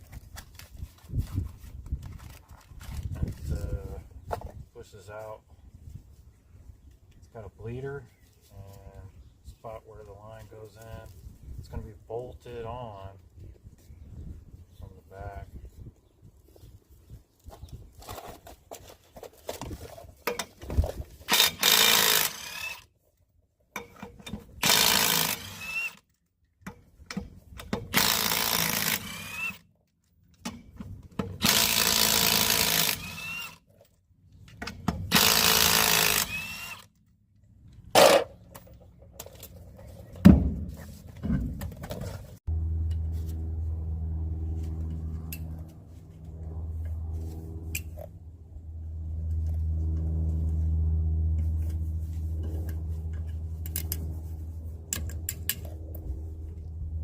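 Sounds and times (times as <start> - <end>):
impact wrench bursts with whine: 21.3 - 22.9, 24.6 - 26.0, 27.9 - 29.7, 31.4 - 33.6, 35.1 - 36.9
steady low hum: 34.2 - 57.0.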